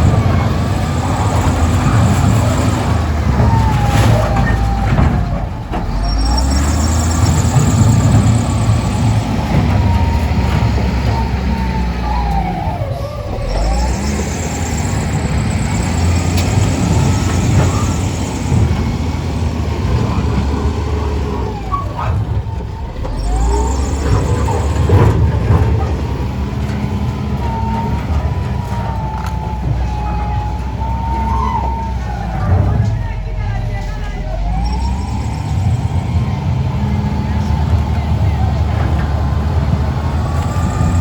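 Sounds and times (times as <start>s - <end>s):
heavy engine running: 0.0s - 41.0s.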